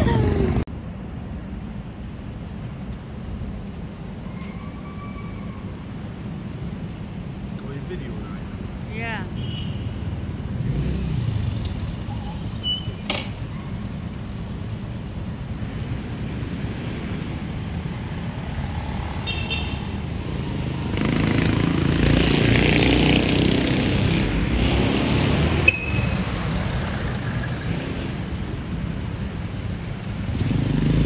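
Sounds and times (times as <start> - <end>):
street traffic rumbling: 0.0 - 31.0
vehicle passing close by: 10.1 - 12.1, 15.6 - 28.8, 30.1 - 31.0.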